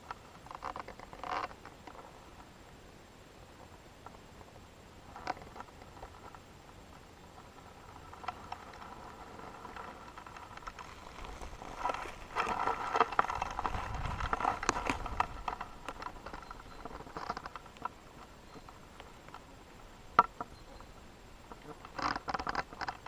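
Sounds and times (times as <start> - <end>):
footsteps on forest path: 10.1 - 17.4.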